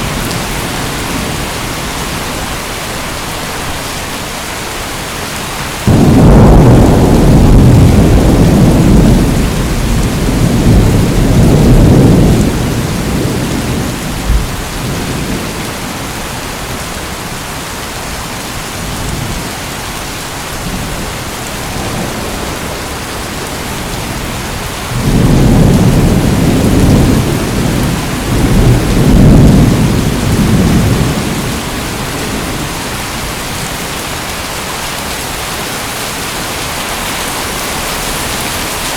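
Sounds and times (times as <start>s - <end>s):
heavy rain: 0.0s - 38.9s
thunder rolling: 5.8s - 15.8s, 21.7s - 32.8s.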